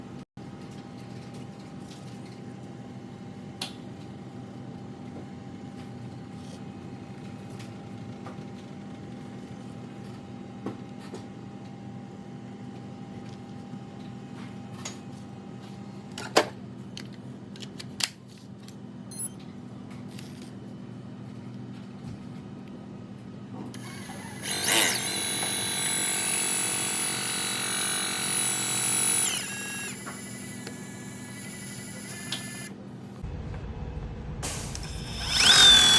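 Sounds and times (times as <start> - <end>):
drone motors whining: 23.8 - 32.7, 34.5 - 35.9
steady low hum: 27.2 - 35.9.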